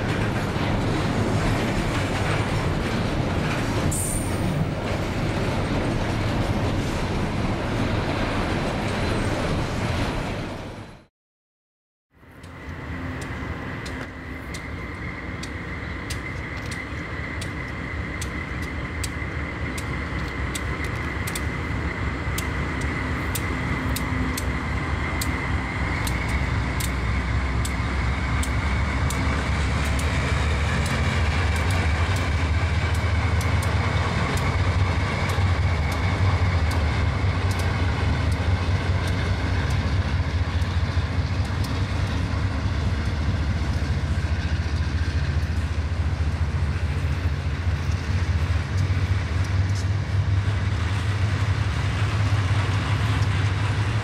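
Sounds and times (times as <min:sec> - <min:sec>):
diesel locomotive rumble: 0:00.0 - 0:11.1, 0:12.1 - 0:54.0.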